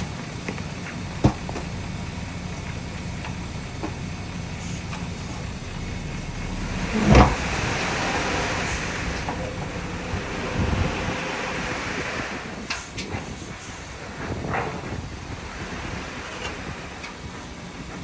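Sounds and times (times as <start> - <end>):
diesel machinery running: 0.0 - 18.0
rushing hiss: 1.0 - 17.0
loud thud: 5.0 - 12.5.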